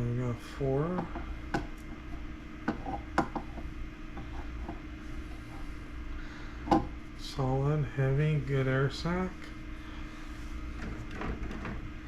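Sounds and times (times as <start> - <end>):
steady low hum: 0.0 - 12.0
egg clicks and taps: 1.0 - 4.8.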